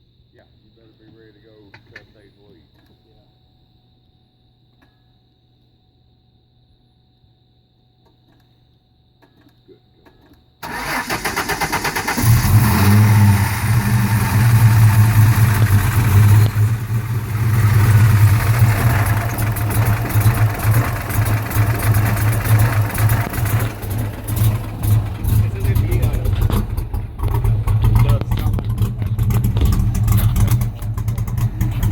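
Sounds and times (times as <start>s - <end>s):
car engine fast idle: 10.6s - 31.9s
starter motor cranking: 10.6s - 31.9s.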